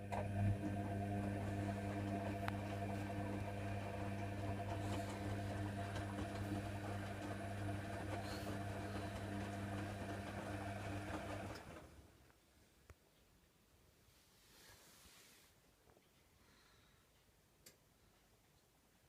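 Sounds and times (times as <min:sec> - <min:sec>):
washer dryer humming: 0:00.0 - 0:12.1.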